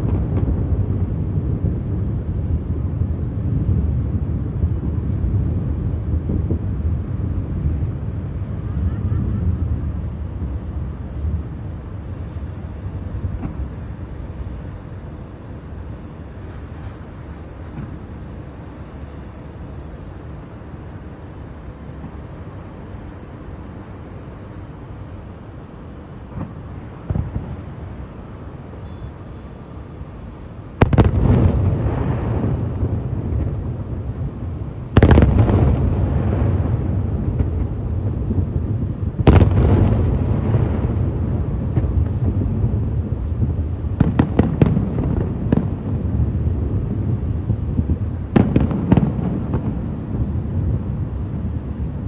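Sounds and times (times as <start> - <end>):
fireworks booms and bangs: 0.0 - 10.0, 26.3 - 27.8, 30.8 - 52.0.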